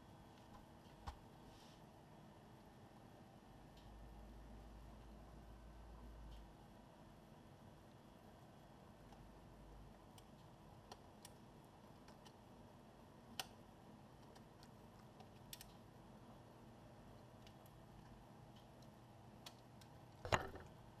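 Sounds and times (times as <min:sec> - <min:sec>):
small clicks and taps: 0:10.0 - 0:12.4, 0:13.3 - 0:13.6, 0:14.2 - 0:15.9, 0:17.2 - 0:20.8.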